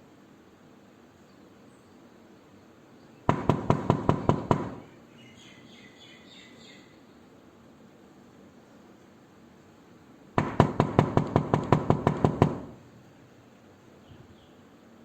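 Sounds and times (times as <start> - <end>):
background hiss: 0.0 - 15.0
knocking on a door: 3.3 - 4.9, 10.4 - 12.8.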